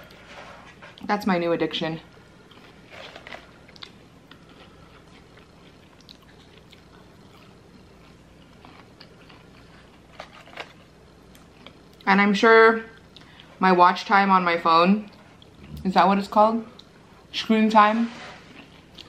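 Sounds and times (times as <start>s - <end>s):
crunching fries: 2.4s - 12.0s.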